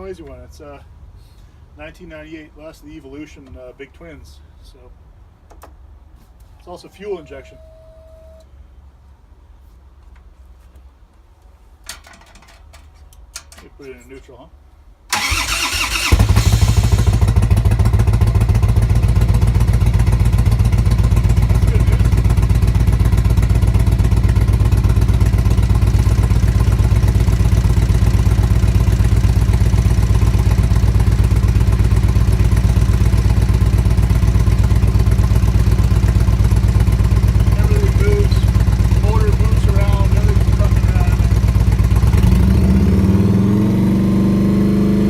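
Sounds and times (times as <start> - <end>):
starter motor cranking: 15.1 - 17.4
motorcycle engine idling: 15.1 - 42.6.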